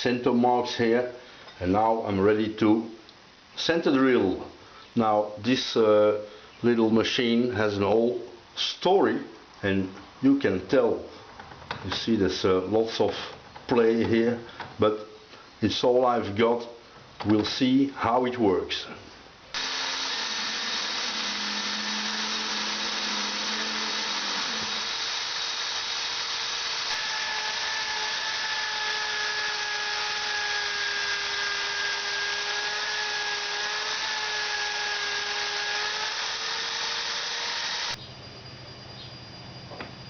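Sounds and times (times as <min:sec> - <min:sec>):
drilling machine running: 0:19.6 - 0:38.0
thin cutting whine: 0:19.6 - 0:40.0.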